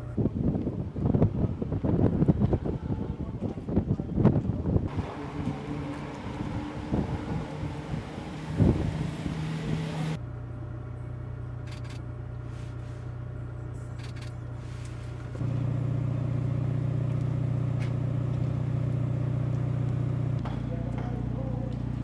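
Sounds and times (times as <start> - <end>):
wind noise: 0.0 - 10.2
low engine hum: 0.0 - 22.0.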